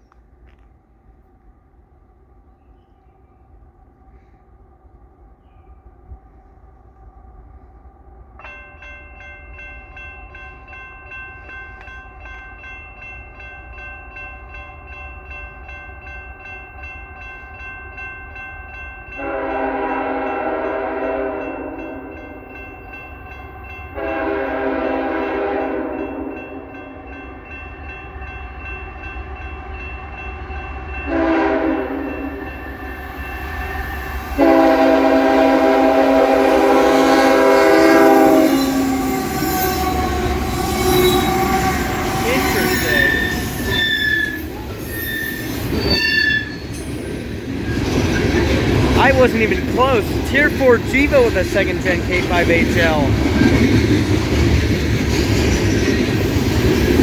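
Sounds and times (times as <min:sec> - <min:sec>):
train rumbling: 0:00.0 - 0:57.0
crossing warning bell ringing: 0:08.4 - 0:54.0
locomotive horn blasts: 0:19.2 - 0:22.0, 0:24.0 - 0:26.4, 0:31.1 - 0:32.3, 0:34.4 - 0:40.4, 0:49.0 - 0:53.1.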